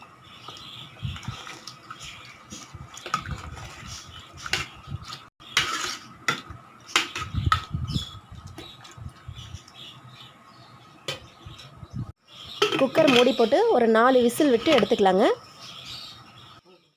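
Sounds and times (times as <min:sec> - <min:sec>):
spoon stirring in pot: 0:01.0 - 0:07.7
spoon clinking and scraping pot: 0:05.5 - 0:06.1.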